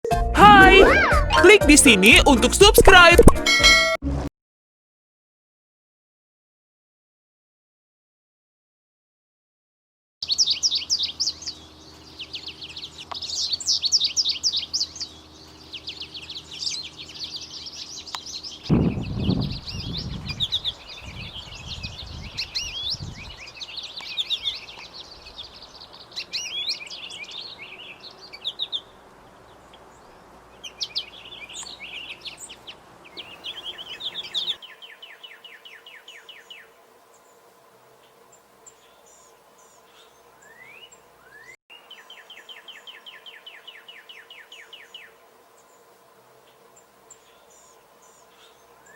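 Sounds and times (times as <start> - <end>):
songbirds twittering: 10.2 - 48.9.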